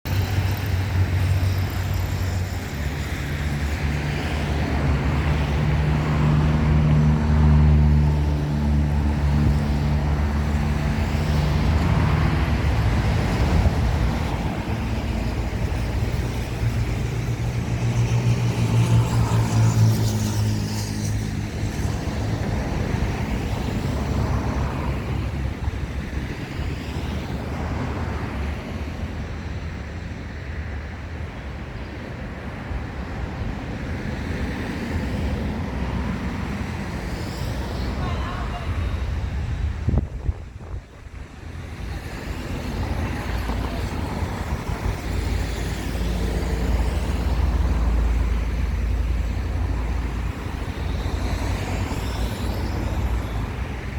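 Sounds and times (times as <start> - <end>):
cars and trucks passing: 0.1 - 53.9.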